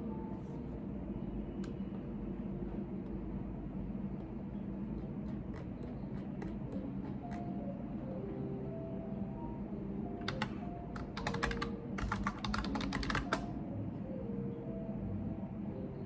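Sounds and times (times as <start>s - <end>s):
low room hum: 0.0s - 16.0s
computer keyboard typing: 5.0s - 7.7s, 10.2s - 13.5s.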